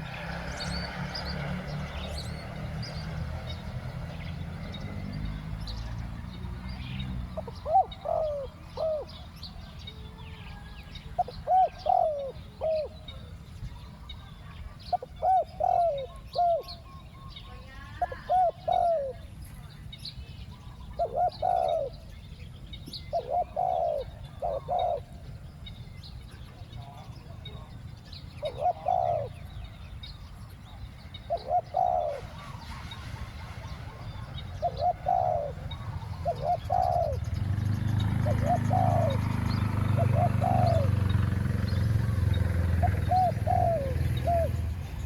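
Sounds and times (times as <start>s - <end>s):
dove cooing: 6.8s - 17.0s, 17.6s - 19.4s, 20.7s - 22.2s, 23.0s - 25.6s, 26.4s - 45.0s.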